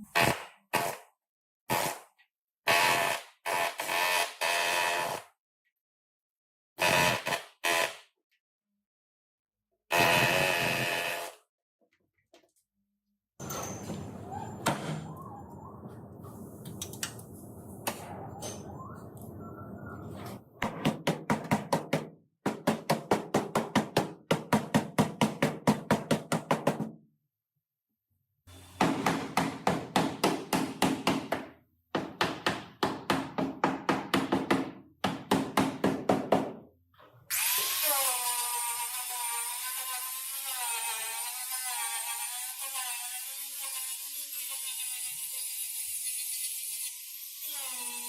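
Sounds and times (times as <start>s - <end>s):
power tool hammering: 28.6s - 36.6s
whirring tool: 37.3s - 48.0s.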